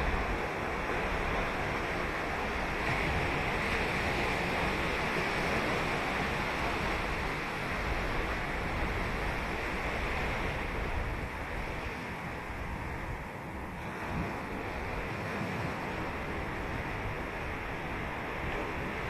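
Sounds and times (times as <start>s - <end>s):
ocean waves on sandy beach: 0.0s - 19.0s.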